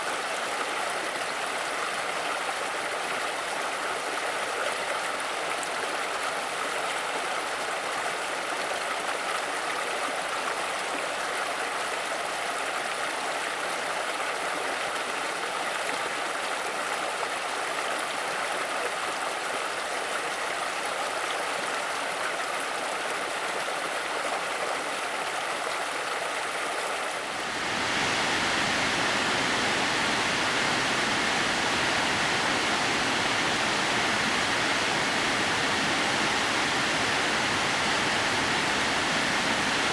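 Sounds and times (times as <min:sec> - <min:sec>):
waterfall rushing: 0:27.2 - 0:39.9.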